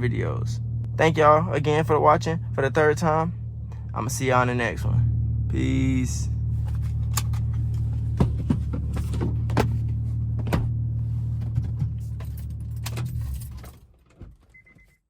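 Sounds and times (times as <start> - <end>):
car engine idling: 0.0 - 14.1.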